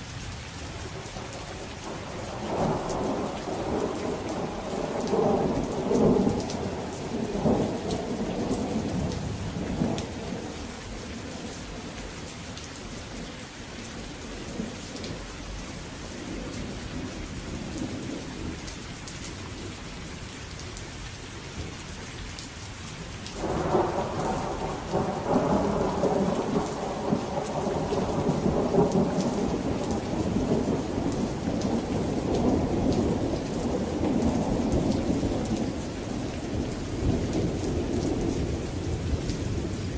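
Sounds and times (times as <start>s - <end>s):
steady rain falling: 0.0s - 39.9s
rolling thunder: 1.8s - 11.9s, 23.4s - 39.9s.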